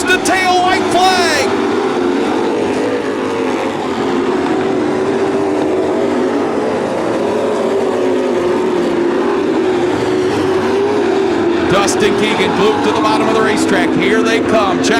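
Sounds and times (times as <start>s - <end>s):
race truck engines running hard: 0.0s - 14.9s.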